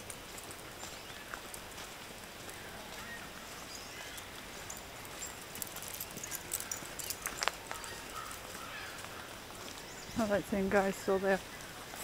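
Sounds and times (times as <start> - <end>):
footsteps on dirt path: 0.0 - 12.0
steady outdoor hiss: 0.0 - 12.0
faint bird calls: 6.2 - 10.2.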